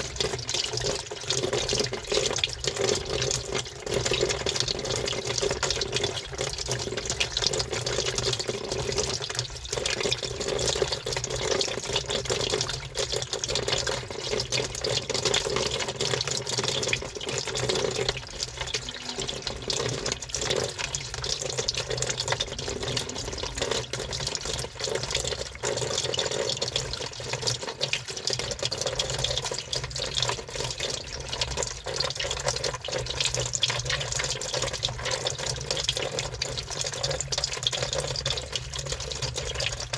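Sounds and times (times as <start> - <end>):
water sloshing in washing machine: 0.0 - 39.9
steady low hum: 18.3 - 24.9.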